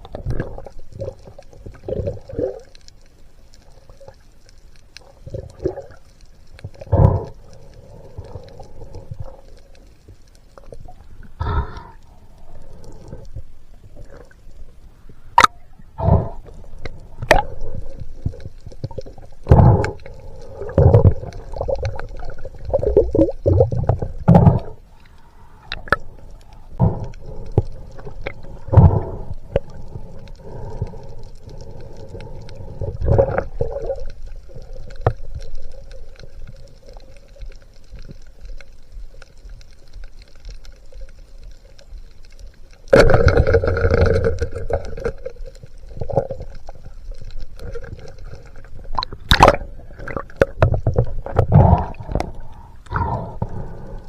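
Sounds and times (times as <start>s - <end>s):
rush of water bubbles: 17.1s - 24.8s, 32.6s - 35.3s, 42.9s - 46.8s, 47.6s - 53.6s
muffled underwater knocks and gurgles: 47.7s - 52.4s.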